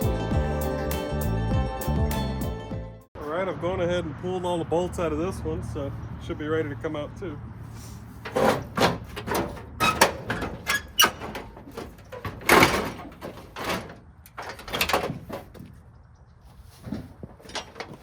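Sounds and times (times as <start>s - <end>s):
metal clanks and scrapes: 7.7s - 15.8s, 16.5s - 18.0s.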